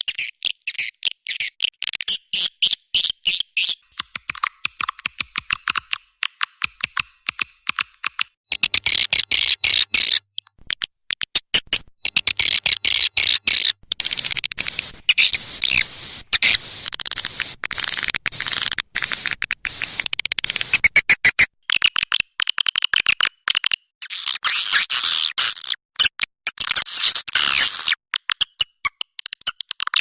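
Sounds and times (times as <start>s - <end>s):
swiftlet chattering twitters: 12.3s - 20.9s.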